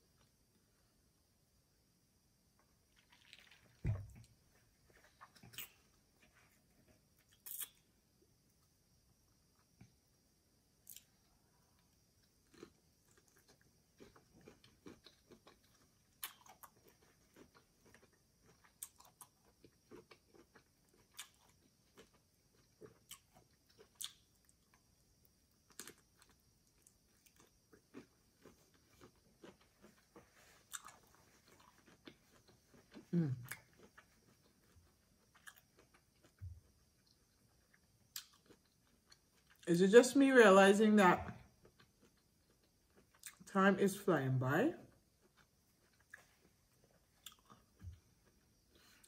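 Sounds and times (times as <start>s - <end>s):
person chewing: 4.9s - 6.5s, 7.2s - 7.8s, 10.8s - 11.2s, 12.4s - 24.8s, 25.6s - 39.6s, 41.5s - 43.4s, 45.0s - 49.0s.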